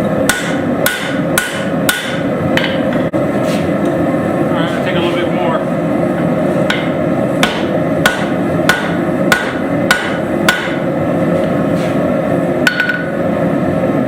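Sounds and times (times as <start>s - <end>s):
hammer striking hot steel on anvil: 0.0s - 3.1s, 6.6s - 10.9s, 12.6s - 13.2s.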